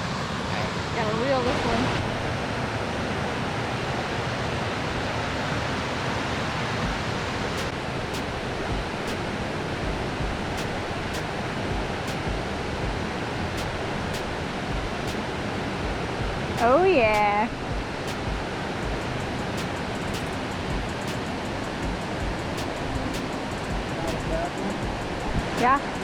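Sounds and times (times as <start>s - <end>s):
waterfall rushing: 0.0s - 26.0s
faint high ticks: 18.1s - 26.0s.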